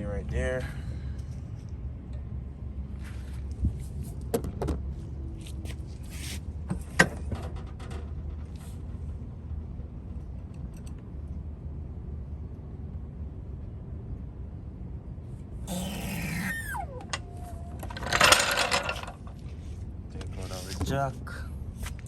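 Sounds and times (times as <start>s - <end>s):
metal tools clinking: 16.8s - 19.4s.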